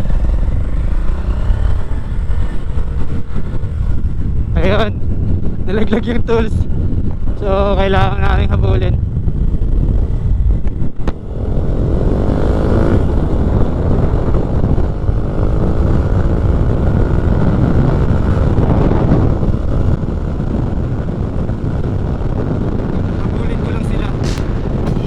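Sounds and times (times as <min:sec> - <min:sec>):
motorcycle accelerating hard: 0:00.0 - 0:05.9, 0:06.7 - 0:25.0
steady low rumble: 0:21.9 - 0:25.0.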